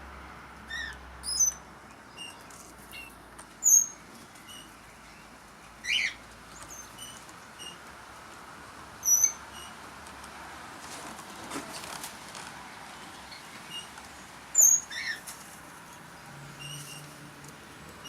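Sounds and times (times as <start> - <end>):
birds chirping: 0.6 - 7.9, 9.0 - 9.8, 12.9 - 18.0.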